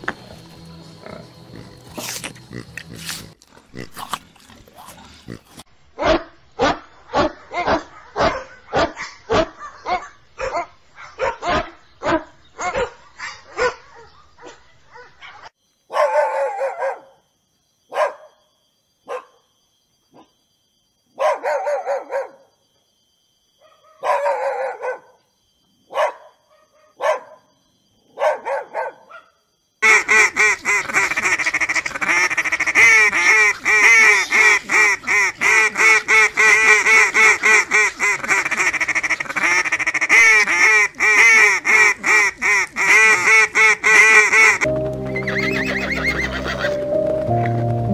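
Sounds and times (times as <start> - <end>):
pigs grunting: 0.0 - 5.7
puppy barking: 6.0 - 17.2, 17.9 - 18.4, 19.1 - 19.4, 21.2 - 22.4, 23.6 - 25.2, 25.9 - 27.4, 28.2 - 29.3
gulls and ducks calling: 29.8 - 46.8.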